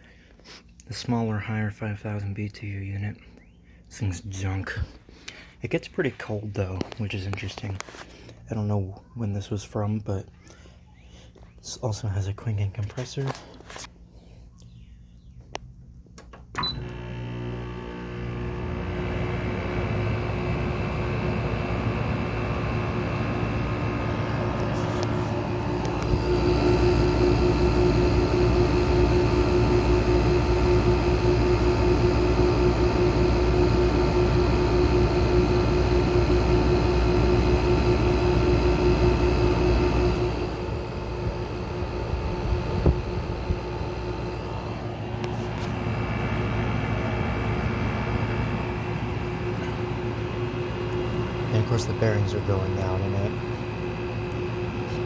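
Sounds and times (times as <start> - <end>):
compressor humming: 0.0 - 55.0
air conditioner fan spinning up: 15.3 - 55.0
noisy fan bearings: 16.8 - 55.0.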